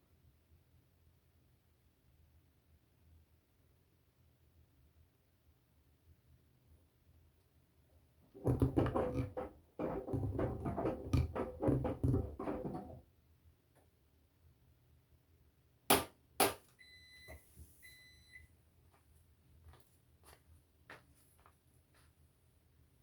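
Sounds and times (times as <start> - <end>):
washing machine electronic beeps: 16.8 - 18.5.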